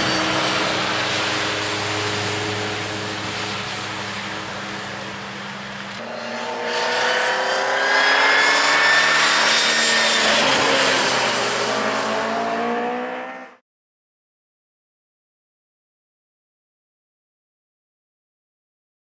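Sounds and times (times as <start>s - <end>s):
car engine accelerating: 0.0s - 13.6s
race car engine steady note: 0.0s - 13.6s.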